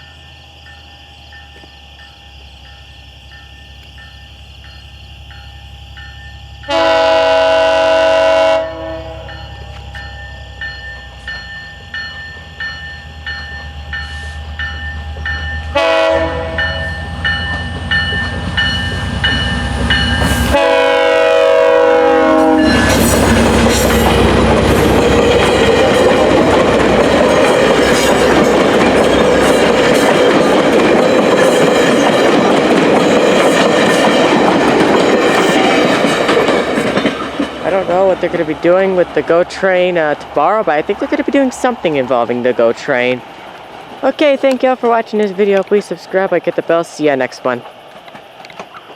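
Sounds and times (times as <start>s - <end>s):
crossing bell ringing: 0.0s - 7.3s, 8.6s - 21.3s, 22.1s - 43.2s
train horn blasts: 6.7s - 9.7s, 15.7s - 17.1s, 20.2s - 24.3s
train wheels clattering: 9.3s - 20.7s, 22.3s - 45.9s.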